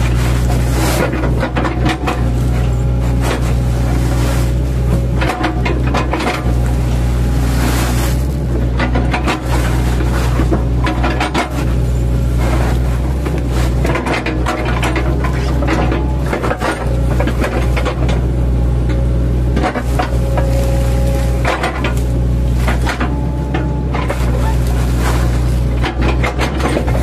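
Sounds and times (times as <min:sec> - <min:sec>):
excavator diesel engine running: 0:00.0 - 0:27.0
bucket knocking and clattering: 0:00.1 - 0:06.8, 0:21.4 - 0:27.0.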